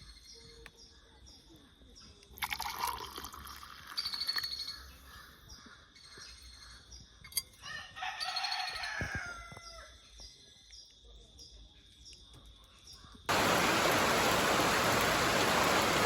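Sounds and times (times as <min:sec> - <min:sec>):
rooster crowing: 0:07.6 - 0:09.9
small birds chirping: 0:10.2 - 0:16.0.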